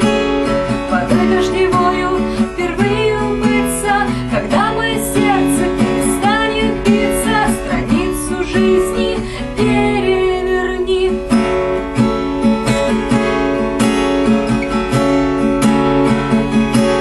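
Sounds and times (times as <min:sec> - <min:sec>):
person singing: 0:00.0 - 0:11.4
acoustic guitar strumming: 0:00.0 - 0:17.0.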